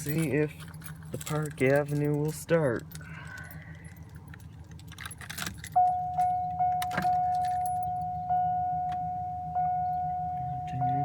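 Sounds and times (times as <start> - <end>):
keys jangling and clicking: 0.0 - 8.1
key going into ignition: 0.0 - 9.0
dashboard warning chime: 5.2 - 11.0.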